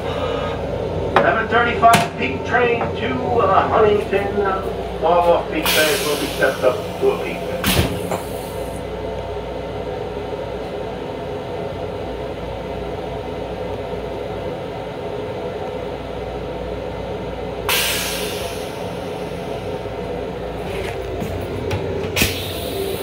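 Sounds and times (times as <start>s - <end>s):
electric railcar hum and rumble: 0.0s - 23.0s.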